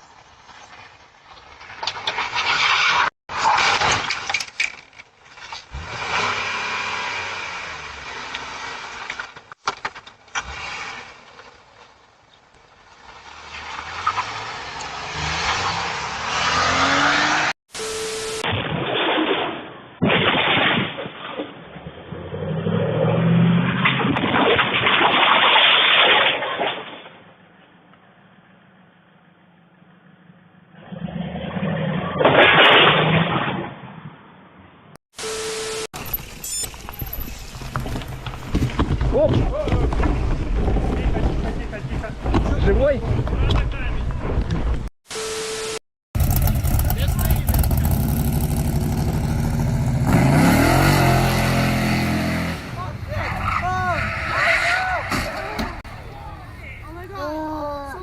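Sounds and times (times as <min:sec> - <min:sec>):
road noise: 0:00.0 - 0:18.5, 0:27.3 - 0:32.2, 0:33.8 - 0:58.0
vehicle engine: 0:10.3 - 0:18.1, 0:46.2 - 0:57.1.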